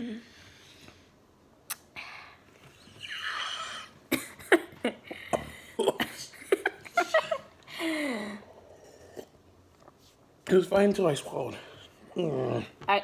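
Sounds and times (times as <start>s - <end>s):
person moaning: 12.1s - 12.8s.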